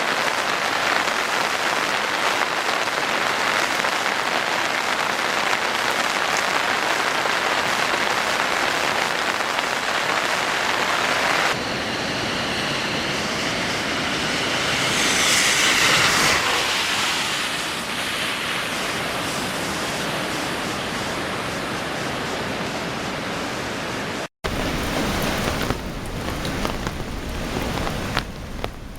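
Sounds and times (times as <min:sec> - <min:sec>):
wind: 0:00.0 - 0:28.9
rough surf: 0:24.4 - 0:28.9.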